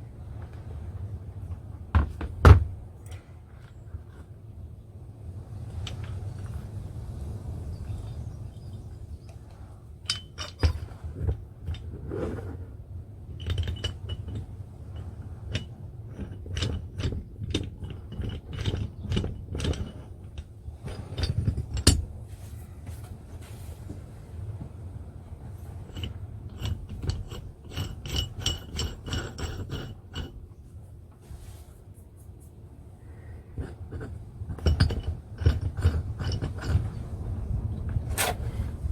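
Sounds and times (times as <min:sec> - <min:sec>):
metal car jack clinking: 0:10.1 - 0:11.0, 0:13.4 - 0:22.1, 0:25.9 - 0:30.4.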